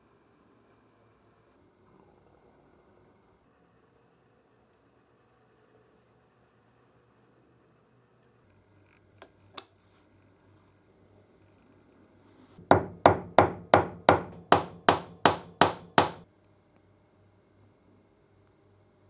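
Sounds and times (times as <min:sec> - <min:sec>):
hammer blows on metal: 0:12.6 - 0:16.2.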